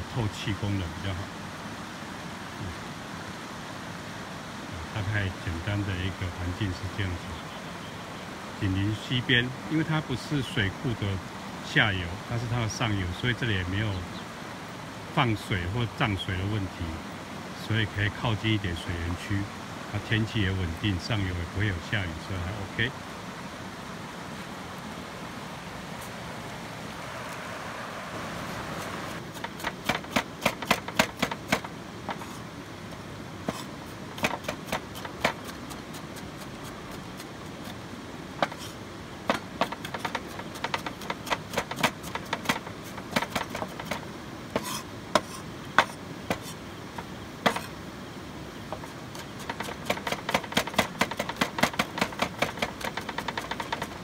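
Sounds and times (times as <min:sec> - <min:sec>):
stream rushing: 0:00.0 - 0:54.0
knife chopping on cutting board: 0:44.6 - 0:46.5.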